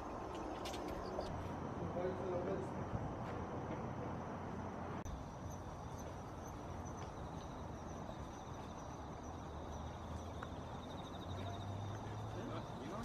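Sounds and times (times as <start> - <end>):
insects trilling: 4.6 - 13.0.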